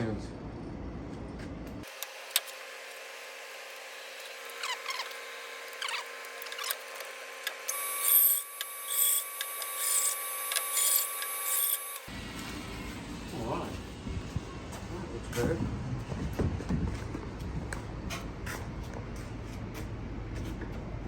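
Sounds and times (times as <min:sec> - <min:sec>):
power tool whining and cutting: 0:01.8 - 0:13.1.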